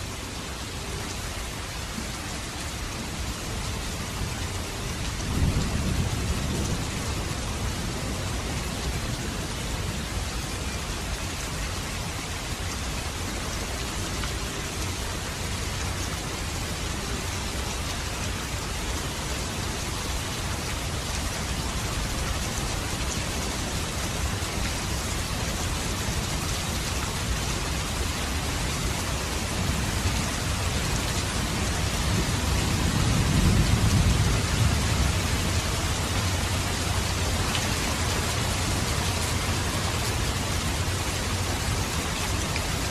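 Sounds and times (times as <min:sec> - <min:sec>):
rain falling: 0:00.0 - 0:42.9
thunder rumbling: 0:05.2 - 0:09.0, 0:29.3 - 0:40.0.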